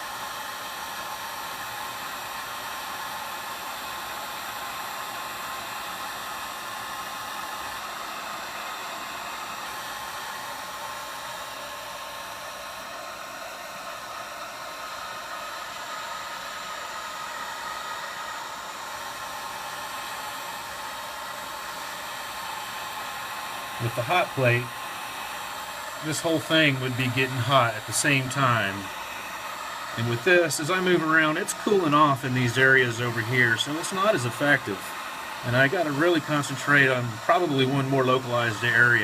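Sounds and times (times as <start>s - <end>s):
hot air gun blowing: 0.0s - 39.0s.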